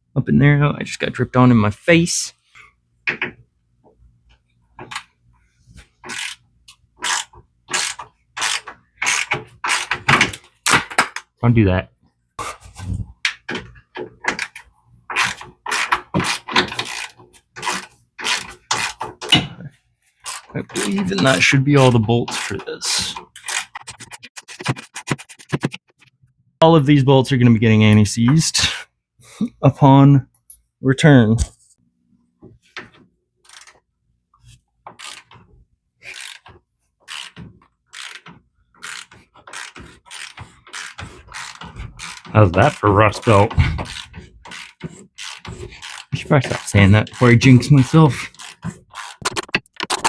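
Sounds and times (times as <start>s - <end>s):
ratchet wrench clicking: 6.0s - 11.0s, 14.3s - 19.0s, 22.3s - 22.6s, 33.5s - 33.8s, 34.9s - 35.4s, 36.1s - 36.5s, 37.1s - 49.4s.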